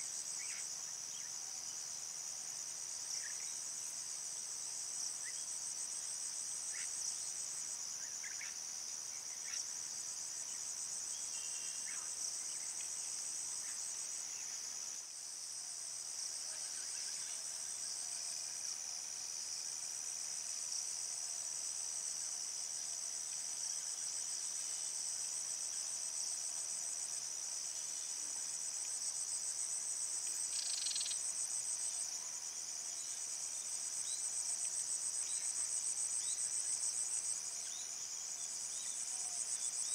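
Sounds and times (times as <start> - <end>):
insects trilling: 27.7 - 31.8.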